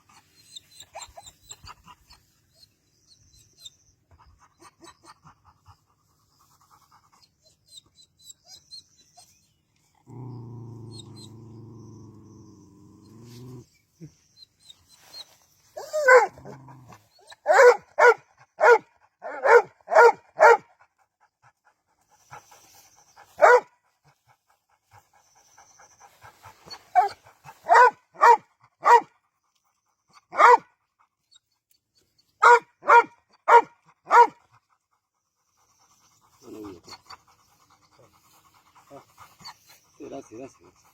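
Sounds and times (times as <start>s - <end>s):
dog barking: 15.9s - 16.4s, 17.4s - 20.7s, 23.4s - 23.7s, 27.0s - 29.1s, 30.3s - 30.7s, 32.4s - 34.4s.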